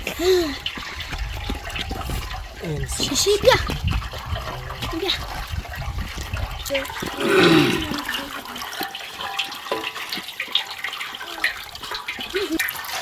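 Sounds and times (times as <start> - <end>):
water running and splashing: 0.0 - 13.0
small clinks and knocks: 7.9 - 13.0.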